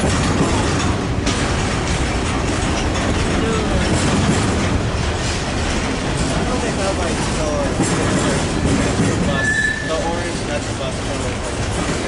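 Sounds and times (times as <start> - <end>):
train wheels on rails: 0.0 - 12.0
wheel squeals: 9.2 - 10.3.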